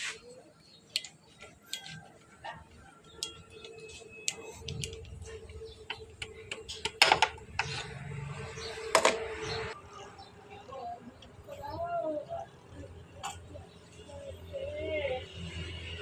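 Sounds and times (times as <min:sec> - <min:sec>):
hand tools tapping on metal: 0:00.9 - 0:02.2, 0:03.2 - 0:08.1.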